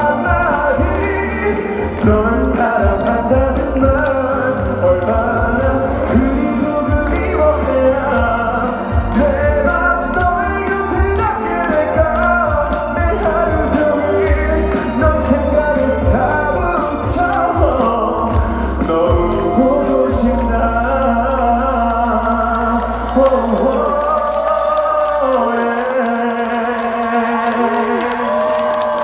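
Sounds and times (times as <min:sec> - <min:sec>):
man singing into a microphone: 0:00.0 - 0:29.0.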